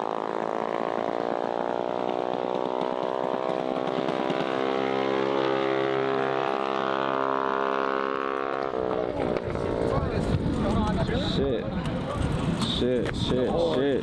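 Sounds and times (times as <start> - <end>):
small engine running hard: 0.0 - 11.2.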